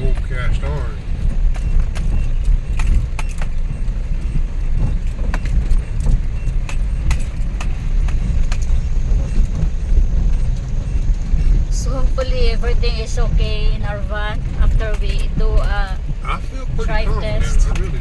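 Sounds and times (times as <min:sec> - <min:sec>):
light rattles and clicks: 0:00.0 - 0:18.0
van engine and road rumble: 0:00.0 - 0:18.0.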